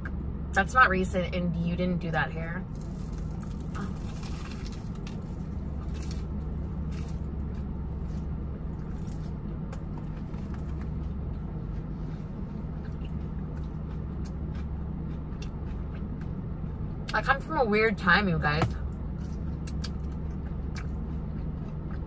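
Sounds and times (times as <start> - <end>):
idling car hum: 0.0 - 22.0
crunching bites and chewing: 2.7 - 17.1, 18.8 - 22.0.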